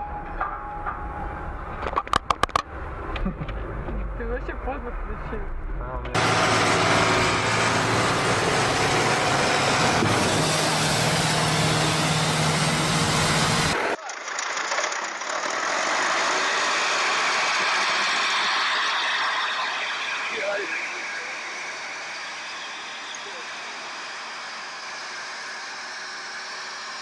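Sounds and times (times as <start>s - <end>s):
thin steady vehicle noise: 0.1s - 27.0s
vehicle engine running loudly: 6.1s - 27.0s.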